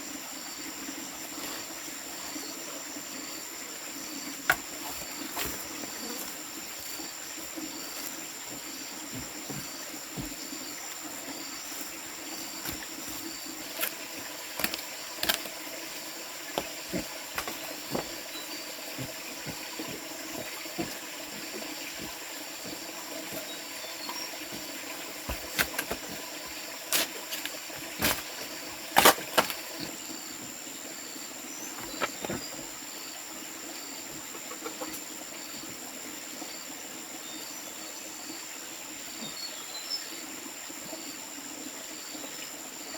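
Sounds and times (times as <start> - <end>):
faint insect chirp: 0.0 - 42.9
insects droning: 0.0 - 42.9.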